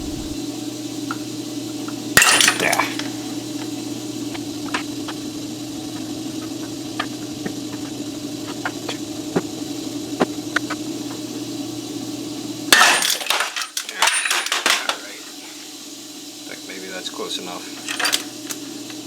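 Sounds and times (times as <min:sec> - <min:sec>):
steady low hum: 0:00.0 - 0:00.4
steel parts clanking and rattling: 0:12.8 - 0:15.2, 0:17.8 - 0:18.3.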